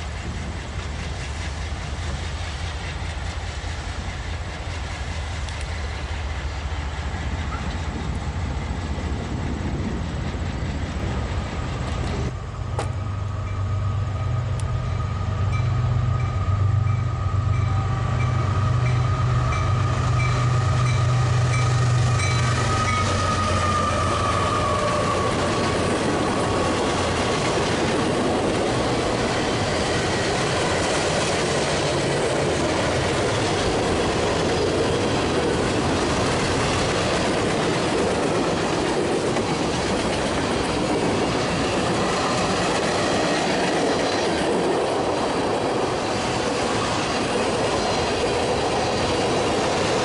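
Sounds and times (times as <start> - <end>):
diesel locomotive engine rumbling: 0.0 - 50.0
freight train passing: 0.0 - 50.0.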